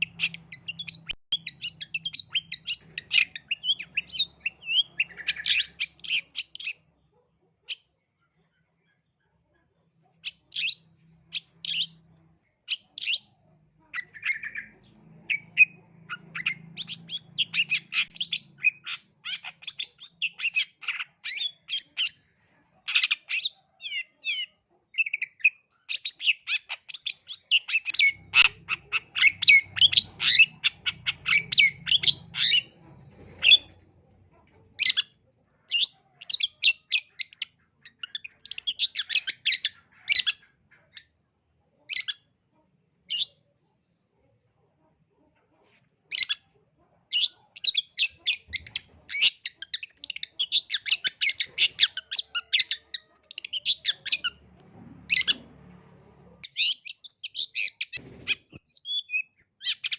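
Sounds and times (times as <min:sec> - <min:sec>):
shrike chattering song: 0:00.0 - 0:06.8, 0:10.2 - 0:22.3, 0:22.9 - 0:33.8.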